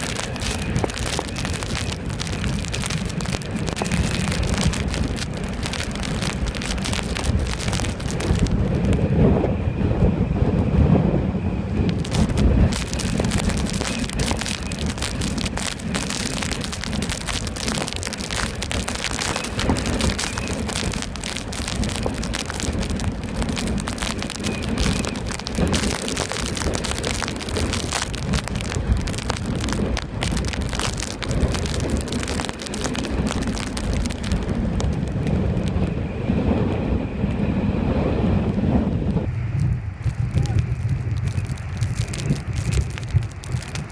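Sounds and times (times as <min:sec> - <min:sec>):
wind rumble on microphone: 0:00.0 - 0:43.9.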